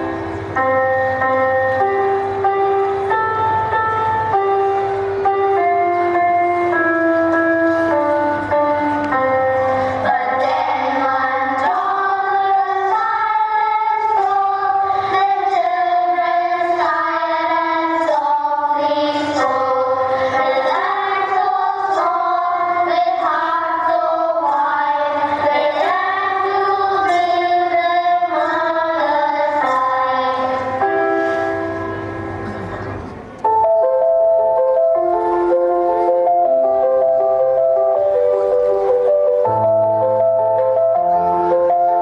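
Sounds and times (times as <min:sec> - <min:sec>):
musical accompaniment: 0:00.0 - 0:42.0
person singing a melody: 0:09.5 - 0:31.8.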